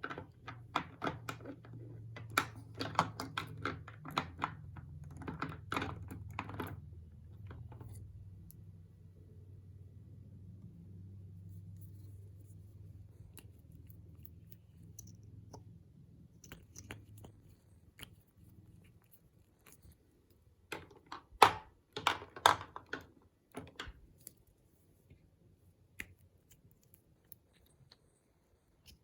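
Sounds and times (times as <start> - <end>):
cosmetics clicking and crunching: 0.0 - 7.9, 13.1 - 24.5.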